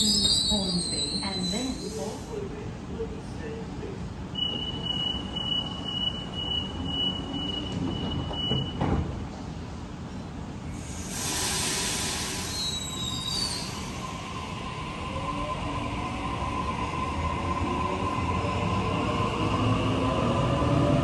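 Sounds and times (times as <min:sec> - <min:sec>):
train wheel squeal: 0:00.0 - 0:02.2, 0:04.4 - 0:08.9, 0:12.0 - 0:14.2
rushing hiss of train: 0:00.0 - 0:02.5, 0:10.7 - 0:15.0.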